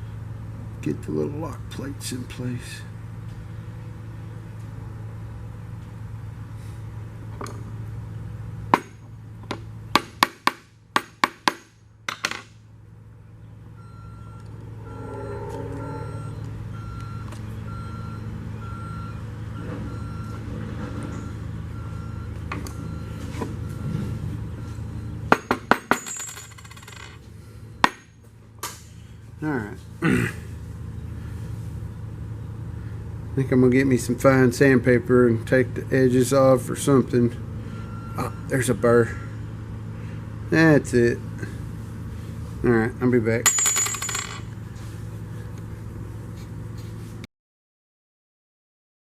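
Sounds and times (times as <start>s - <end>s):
steady low hum: 0.0s - 19.4s, 21.2s - 47.2s
short beeps: 13.8s - 19.2s
small metal parts clinking: 25.9s - 27.2s, 43.4s - 44.5s.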